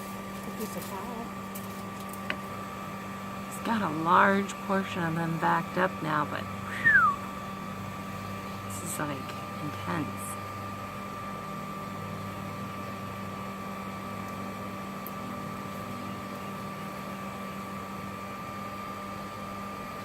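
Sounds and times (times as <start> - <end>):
vacuum motor hum: 0.0 - 20.0.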